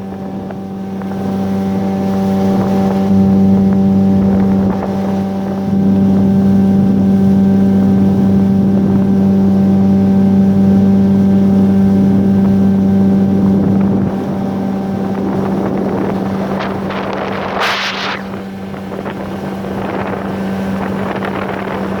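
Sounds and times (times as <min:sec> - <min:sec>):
outboard motor running: 0:00.0 - 0:22.0
rushing noise: 0:16.2 - 0:18.6.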